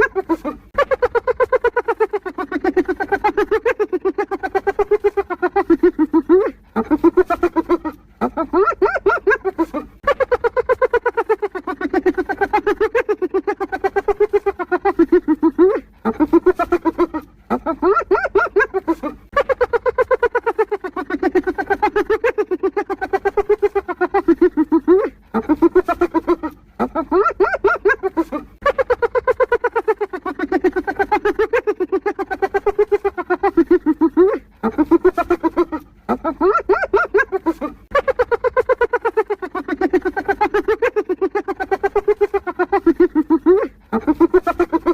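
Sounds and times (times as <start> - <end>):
hyena giggling yelps: 0.0 - 44.9.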